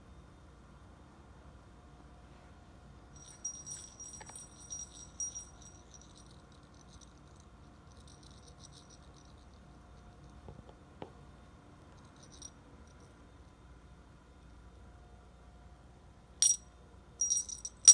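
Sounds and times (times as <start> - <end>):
small bell jingling: 3.2 - 9.6, 12.0 - 13.1, 16.4 - 16.6, 17.2 - 17.9.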